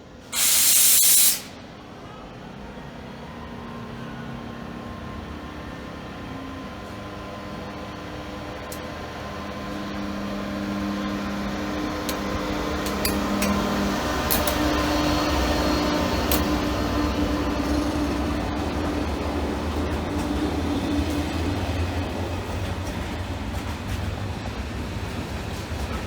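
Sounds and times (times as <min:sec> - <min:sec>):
train humming and rumbling: 0:00.0 - 0:26.0.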